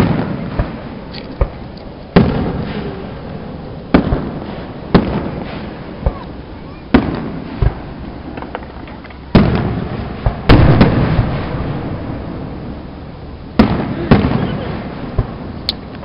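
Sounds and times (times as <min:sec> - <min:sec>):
fireworks banging: 0:00.0 - 0:16.0.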